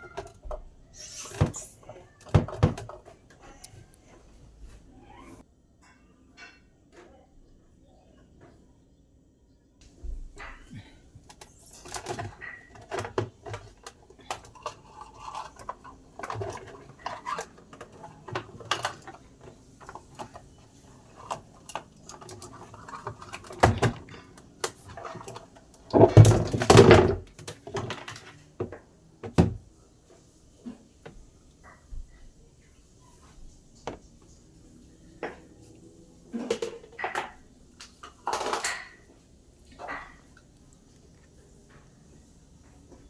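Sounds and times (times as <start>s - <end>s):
plastic and metal parts handled: 11.2s - 28.4s.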